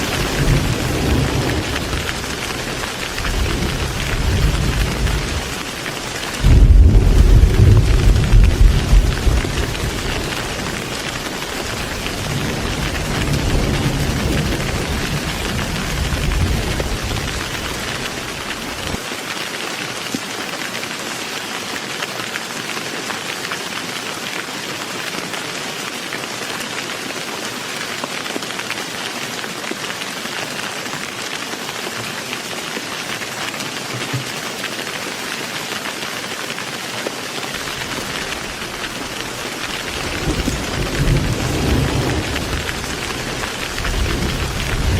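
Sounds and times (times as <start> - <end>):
rolling thunder: 0.0 - 5.6, 6.2 - 19.0, 37.6 - 44.9
heavy rain: 0.0 - 44.9.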